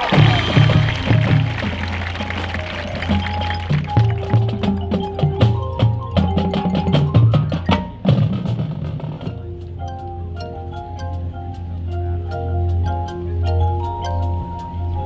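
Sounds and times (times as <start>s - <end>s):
drum and percussion hits: 0.0s - 11.7s
mallet keyboard pattern: 0.0s - 15.0s.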